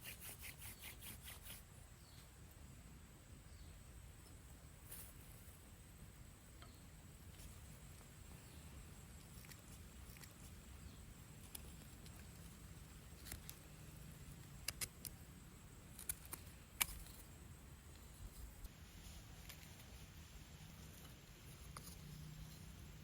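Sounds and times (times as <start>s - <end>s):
small sharp clicks: 14.5s - 15.2s, 15.9s - 17.2s.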